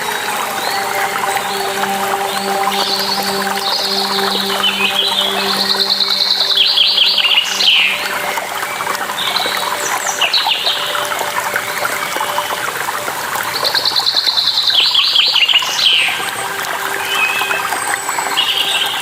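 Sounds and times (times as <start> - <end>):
songbirds chirping and trilling: 0.0 - 12.6
running water rushing: 0.0 - 19.0.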